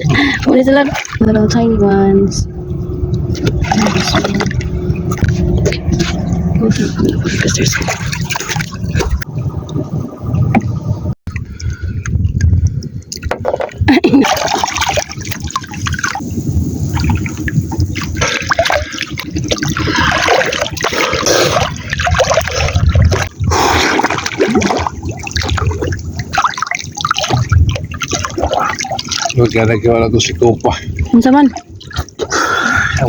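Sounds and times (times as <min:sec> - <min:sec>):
low rumble: 0:00.0 - 0:13.1
seawater sloshing and splashing: 0:00.0 - 0:33.0.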